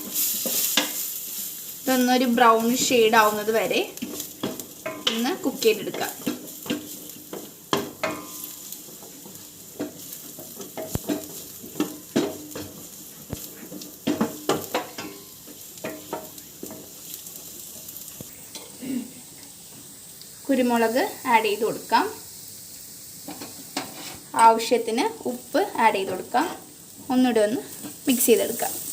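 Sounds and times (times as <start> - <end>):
utensil stirring and scraping pan: 0.0 - 20.0, 23.2 - 28.9
garlic sizzling in butter: 0.0 - 28.9.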